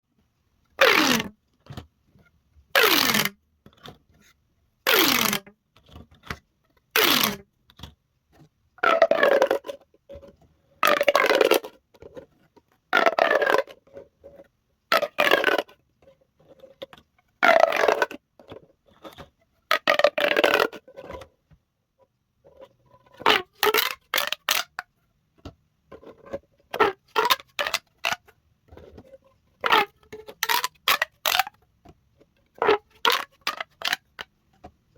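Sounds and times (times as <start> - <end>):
plastic pop tubes popping: 10.8 - 11.8, 14.9 - 15.8, 19.7 - 20.8, 23.2 - 24.9, 26.7 - 28.3, 29.6 - 31.6, 32.5 - 34.7.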